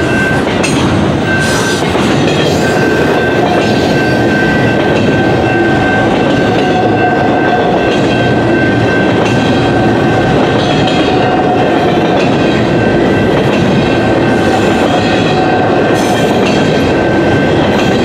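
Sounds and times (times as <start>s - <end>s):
clickety-clack over rail joints: 0.0s - 18.0s
freight train wheels rumbling: 0.0s - 18.0s
high-pitched ringing: 0.0s - 18.0s.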